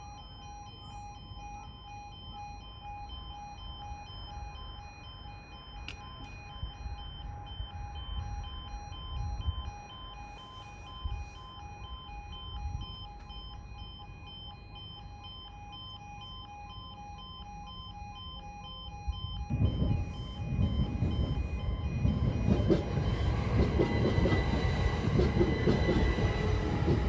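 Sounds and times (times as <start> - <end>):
two-tone level crossing alarm: 0.0 - 27.0
low rumbling noise: 19.5 - 27.0.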